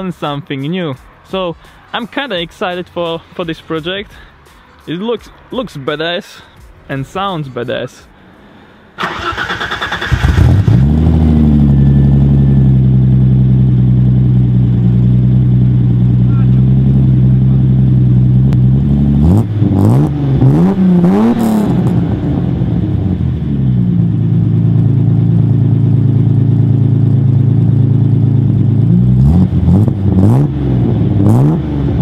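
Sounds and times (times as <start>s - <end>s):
car engine revving: 8.2s - 32.0s.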